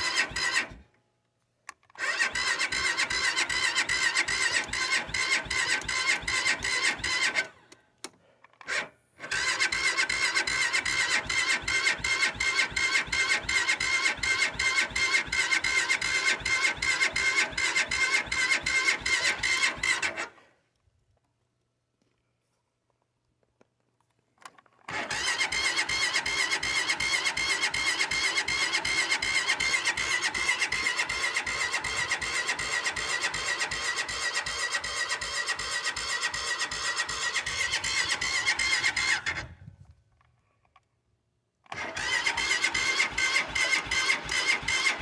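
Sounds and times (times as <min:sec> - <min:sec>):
engine cranking on starter: 0:00.0 - 0:00.9, 0:01.9 - 0:07.8, 0:08.6 - 0:20.5, 0:24.9 - 0:39.7, 0:41.7 - 0:45.0.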